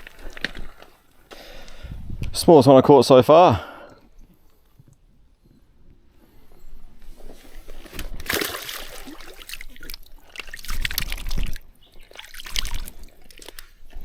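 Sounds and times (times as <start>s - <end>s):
water splashing and trickling: 0.0s - 1.2s, 7.2s - 14.0s
small irregular clicks: 0.0s - 1.8s, 9.6s - 14.0s.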